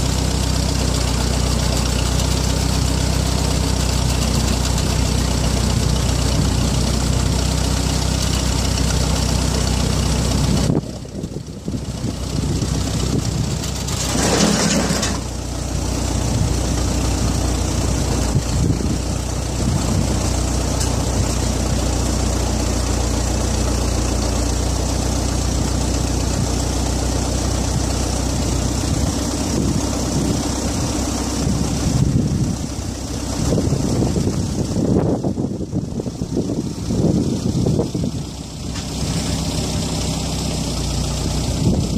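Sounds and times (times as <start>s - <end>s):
backhoe engine running: 0.0s - 41.9s.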